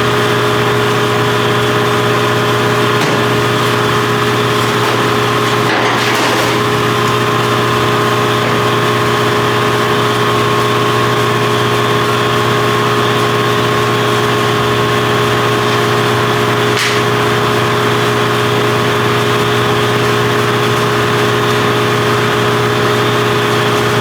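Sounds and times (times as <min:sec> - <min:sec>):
machine humming: 0:00.0 - 0:24.0.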